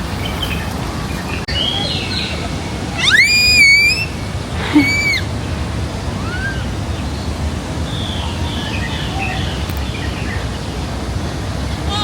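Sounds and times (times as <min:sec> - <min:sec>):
rising call: 0:01.5 - 0:05.3.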